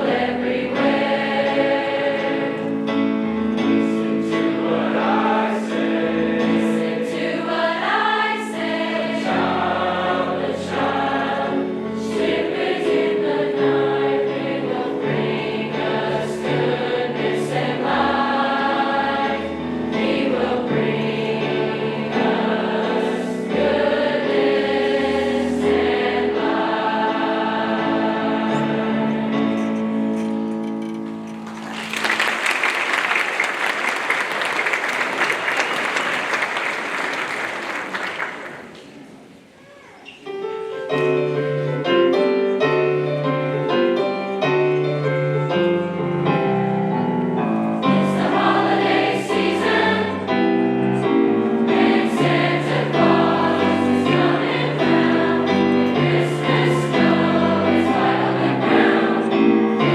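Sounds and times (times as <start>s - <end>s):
choir singing in parts: 0.0s - 30.0s, 47.7s - 59.9s.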